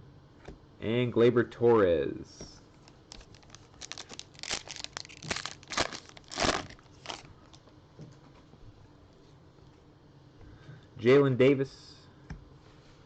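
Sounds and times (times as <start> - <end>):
foil wrapper tearing and crinkling: 2.9 - 7.3.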